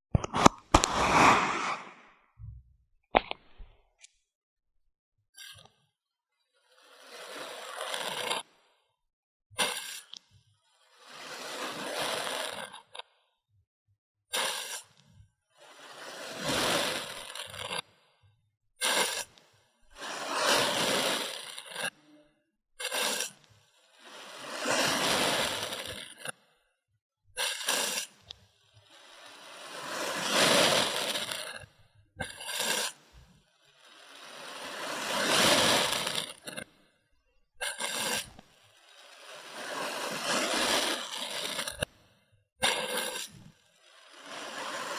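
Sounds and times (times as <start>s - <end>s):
sand crunching and crumbling: 28.9s - 31.6s, 33.7s - 36.6s, 37.9s - 41.9s.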